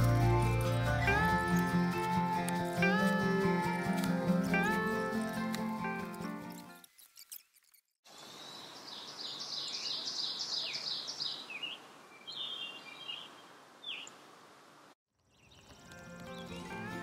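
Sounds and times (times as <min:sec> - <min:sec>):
songbird singing: 0:00.0 - 0:06.6, 0:08.1 - 0:14.3, 0:15.2 - 0:17.0
outdoor background hiss: 0:08.1 - 0:16.4.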